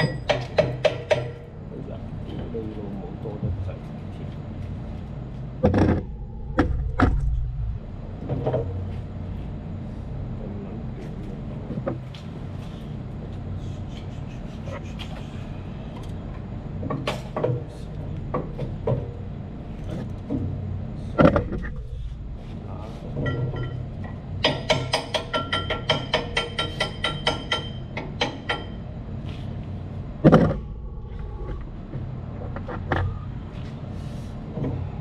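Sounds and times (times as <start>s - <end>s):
metallic knocks and clanks: 0.0s - 1.4s, 23.1s - 28.8s
air conditioning machinery hum: 0.0s - 35.0s.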